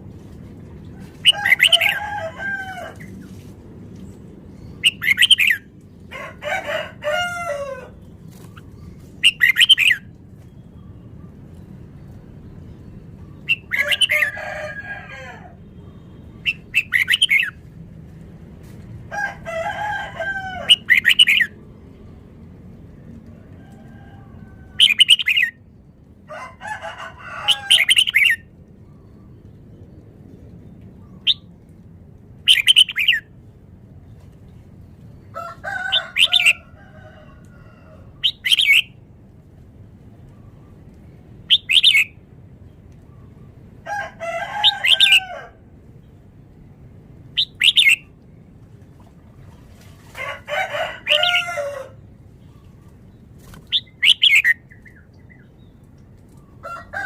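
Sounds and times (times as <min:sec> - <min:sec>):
low background hum: 0:00.0 - 0:57.0
bird singing bubbling phrases: 0:04.5 - 0:05.8, 0:08.4 - 0:14.4, 0:15.7 - 0:17.6, 0:20.7 - 0:22.2, 0:24.7 - 0:26.0, 0:32.4 - 0:33.3, 0:38.1 - 0:39.0, 0:41.4 - 0:42.2, 0:47.3 - 0:50.0, 0:52.4 - 0:56.5.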